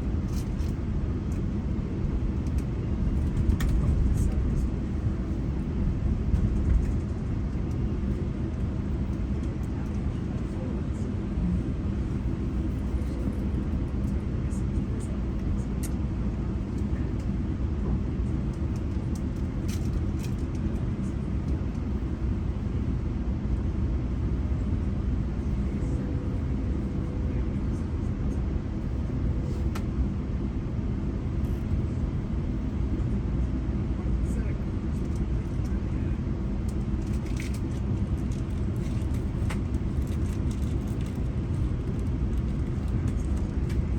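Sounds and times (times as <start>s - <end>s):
train wheels rumbling on rails: 0.0s - 14.2s
train rumbling heard on board: 0.0s - 43.9s.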